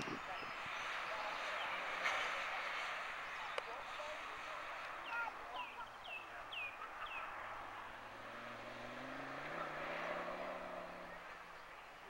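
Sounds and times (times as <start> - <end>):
car engine pulling hard: 0.0 - 12.0
bird chirps: 5.0 - 7.5.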